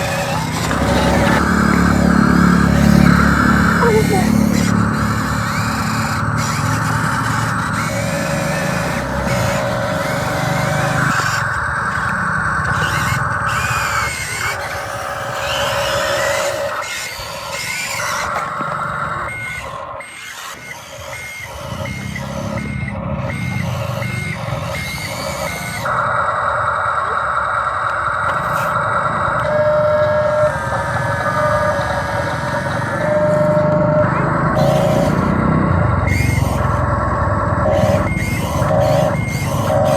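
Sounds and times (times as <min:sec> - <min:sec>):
low engine-like rumble: 0:00.0 - 0:20.0
electric motor and gear whine: 0:00.0 - 0:39.9
reversing beeper: 0:00.0 - 0:39.9.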